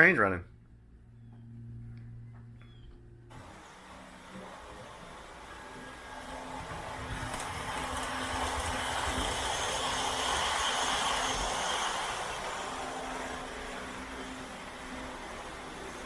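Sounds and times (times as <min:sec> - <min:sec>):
high whine: 0:01.0 - 0:16.0
model train rattling on track: 0:03.3 - 0:16.0.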